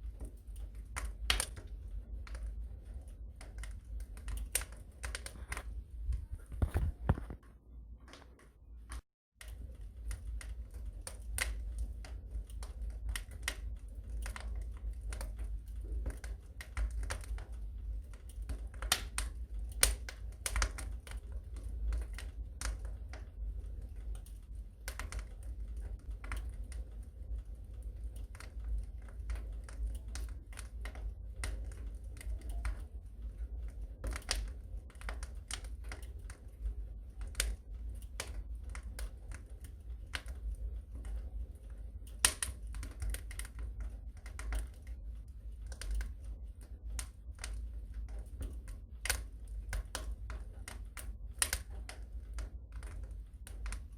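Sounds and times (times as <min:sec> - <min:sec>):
low steady rumble: 0:00.0 - 0:53.9
wood fire crackling: 0:00.0 - 0:53.9.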